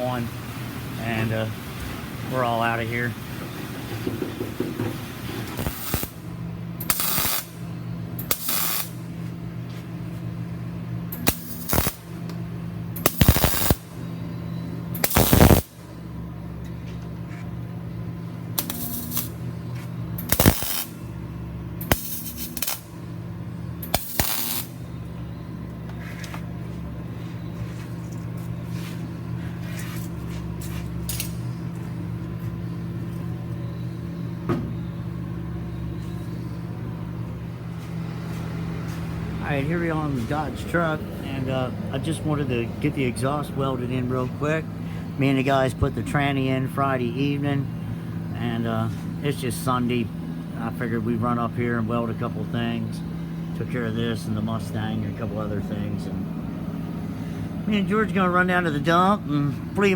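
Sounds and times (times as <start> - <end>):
steady machine hum: 0.0 - 59.9
power tool bursts: 5.6 - 6.2, 6.8 - 7.6, 8.2 - 9.0, 11.1 - 12.1, 13.0 - 14.0, 15.0 - 15.8, 18.6 - 19.4, 20.2 - 21.0, 23.8 - 24.8.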